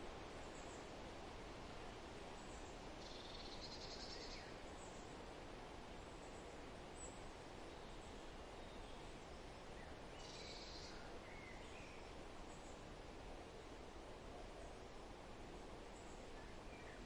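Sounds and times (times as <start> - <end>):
soft steady hiss: 0.0 - 17.0
faint bird chirps: 2.4 - 5.2, 7.0 - 12.8.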